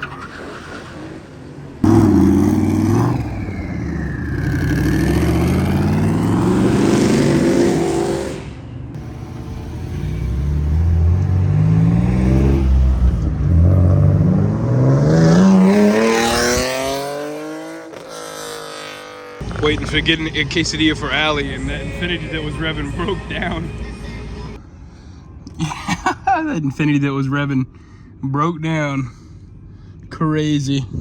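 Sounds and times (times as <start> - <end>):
car engines revving: 0.0 - 24.6.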